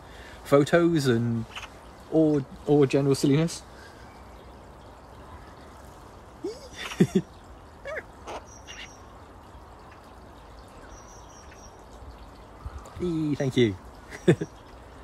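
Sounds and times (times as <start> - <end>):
faint outdoor background noise: 0.0 - 15.0
squeaky bird calls: 7.8 - 9.1.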